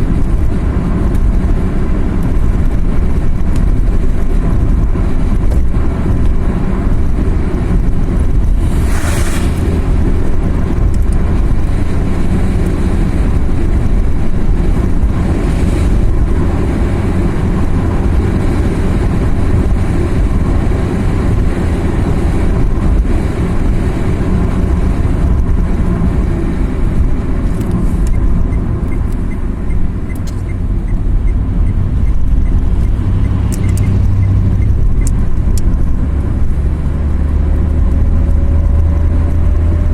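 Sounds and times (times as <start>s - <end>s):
car engine and road rumble: 0.0s - 39.9s
short rushing sound: 8.2s - 10.9s.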